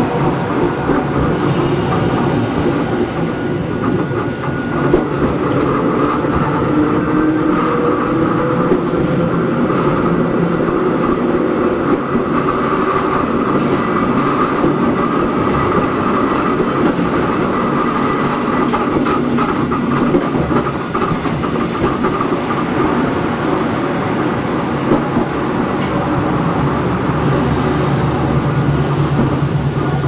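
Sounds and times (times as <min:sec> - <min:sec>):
wheels clacking over rail joints: 0:00.0 - 0:23.7
train running rumble: 0:00.0 - 0:30.0.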